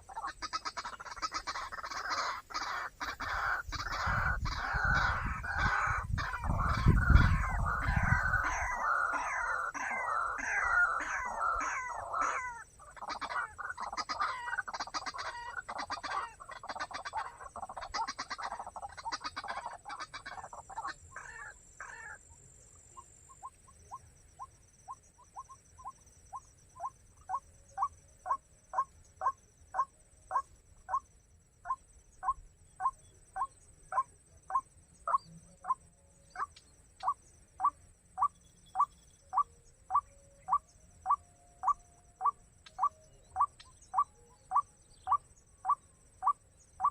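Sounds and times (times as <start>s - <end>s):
waterhen calling harshly: 0.0s - 17.4s.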